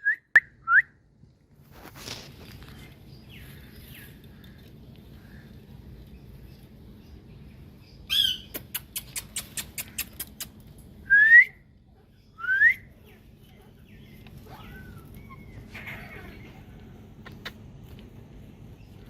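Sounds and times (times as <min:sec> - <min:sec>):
parrot clicking chirps: 0:08.1 - 0:10.6
faint gliding whistles: 0:11.0 - 0:11.7, 0:12.3 - 0:13.0.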